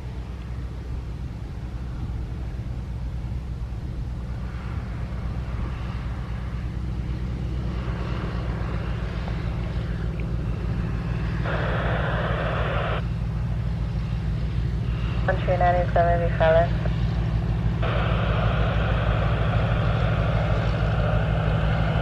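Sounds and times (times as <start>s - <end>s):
aircraft engine rumble: 0.0s - 22.0s
radio static hiss: 7.8s - 13.1s, 14.9s - 22.0s.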